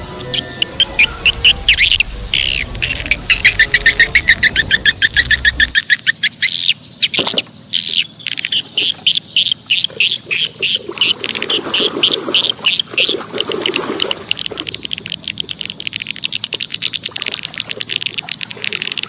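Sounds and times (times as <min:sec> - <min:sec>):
birds chirping and calling: 0:00.0 - 0:19.0.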